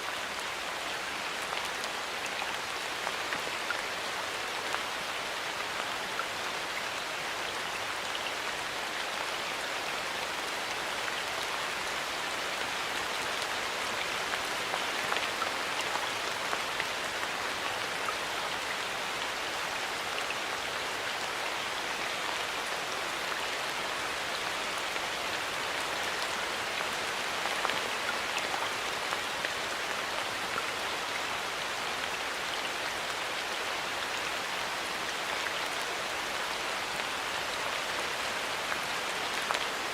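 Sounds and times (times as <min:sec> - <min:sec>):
rain falling in a forest: 0:00.0 - 0:39.9.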